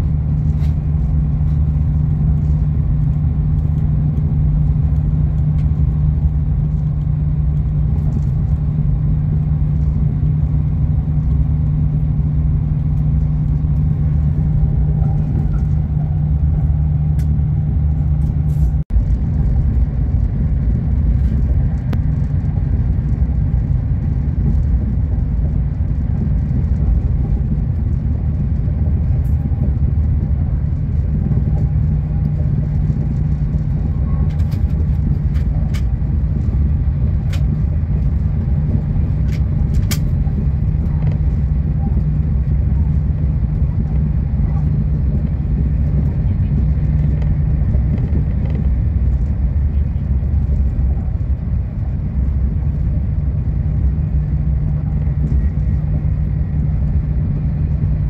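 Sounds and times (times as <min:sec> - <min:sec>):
train rumble inside carriage: 0:00.0 - 0:58.0.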